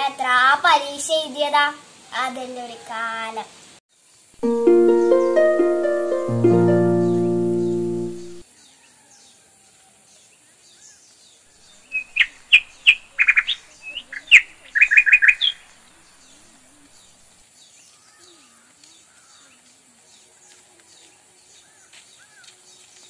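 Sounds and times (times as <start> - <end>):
bird chirping: 11.6 - 17.2.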